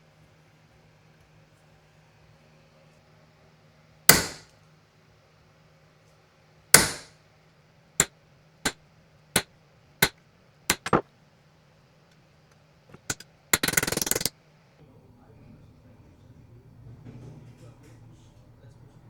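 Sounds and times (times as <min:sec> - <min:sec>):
hammer striking metal: 0:04.1 - 0:04.5, 0:06.8 - 0:07.1, 0:10.7 - 0:11.0, 0:12.9 - 0:14.3.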